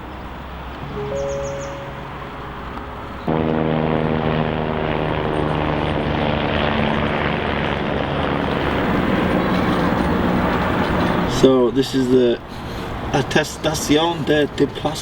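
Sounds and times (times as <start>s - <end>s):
engine drone with pitched hum: 0.0s - 14.1s.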